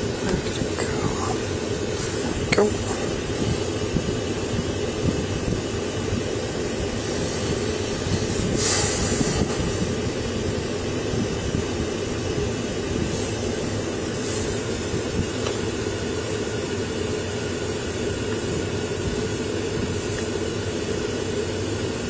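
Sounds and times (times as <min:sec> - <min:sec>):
hiss: 0:00.0 - 0:16.5.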